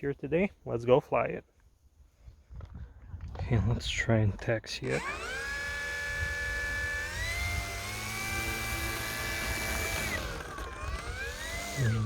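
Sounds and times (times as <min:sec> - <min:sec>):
electric motor and propeller whining: 0:04.8 - 0:12.0.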